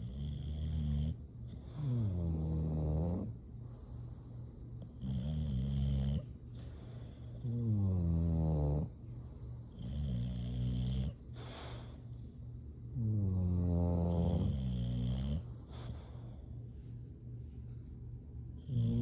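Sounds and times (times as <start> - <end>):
dog snoring: 0.0 - 12.0, 12.9 - 16.4, 18.6 - 19.0
dog airy breath: 11.3 - 12.2.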